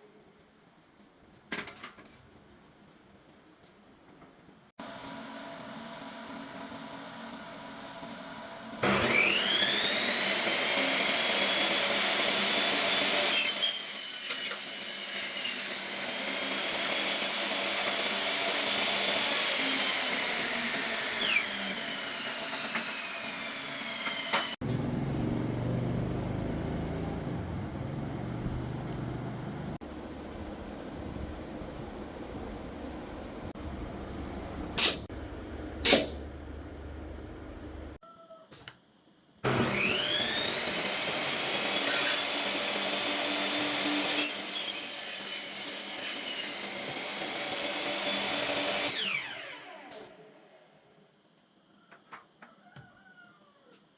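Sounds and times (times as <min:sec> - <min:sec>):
power tool motor whine: 0:04.8 - 0:14.6, 0:15.8 - 0:25.2, 0:39.5 - 0:50.2
low hum: 0:24.7 - 0:38.0.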